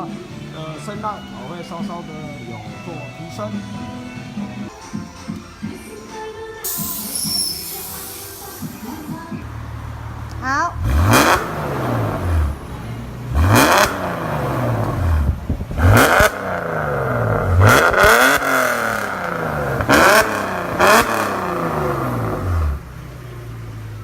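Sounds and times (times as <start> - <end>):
car engine idling: 6.6 - 24.0
car engine revving: 6.6 - 24.0.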